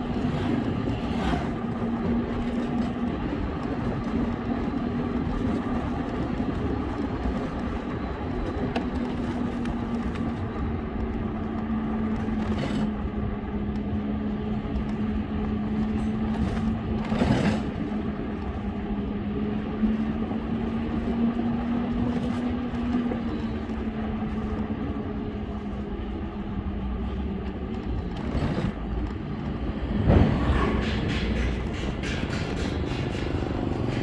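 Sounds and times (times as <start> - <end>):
road traffic rumble: 0.0 - 34.0
vehicle passing close: 29.7 - 32.4.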